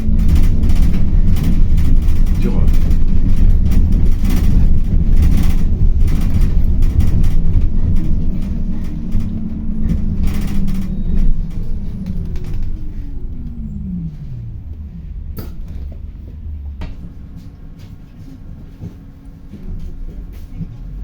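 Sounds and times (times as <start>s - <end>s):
bus engine and road rumble: 0.0s - 21.0s
motor whine: 8.1s - 20.1s.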